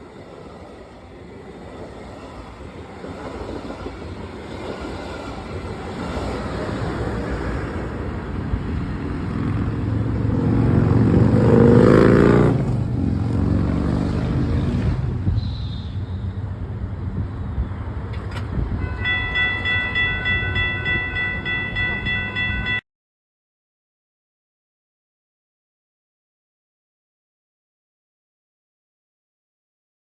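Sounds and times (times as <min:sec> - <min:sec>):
large vehicle engine passing: 0:08.4 - 0:15.3.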